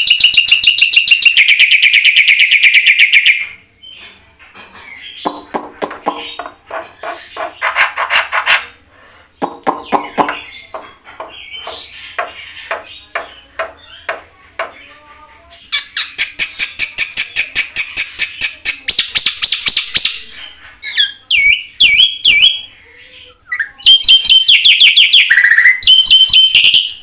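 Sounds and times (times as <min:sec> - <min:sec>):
bird chatter and squawks: 0:00.0 - 0:26.7
bird trilling: 0:05.2 - 0:07.9, 0:09.4 - 0:14.1.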